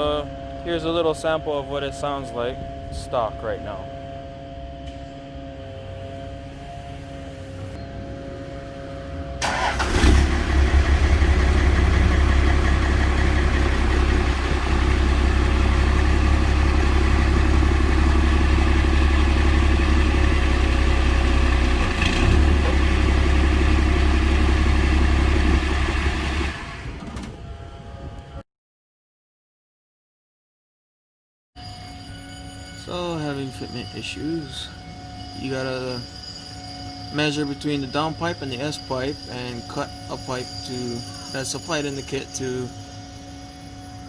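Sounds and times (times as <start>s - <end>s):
diesel engine rumbling: 0.0s - 28.4s, 32.8s - 44.0s.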